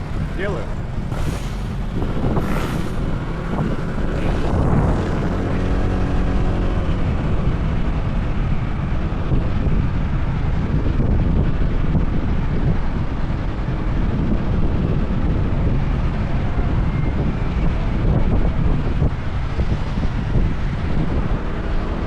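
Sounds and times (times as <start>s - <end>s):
scooter engine running: 0.0s - 7.4s
road noise: 0.0s - 22.0s
wind buffeting microphone: 0.0s - 22.0s.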